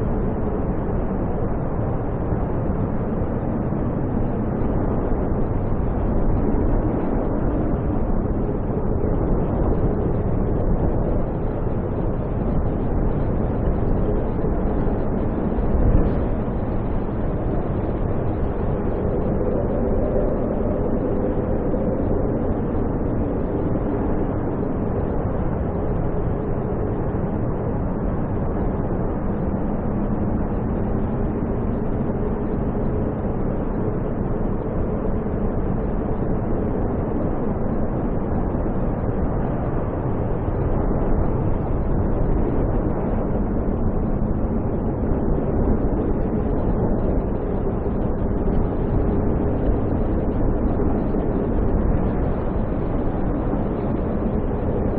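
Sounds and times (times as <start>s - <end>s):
snowstorm wind roaring: 0.0s - 54.9s.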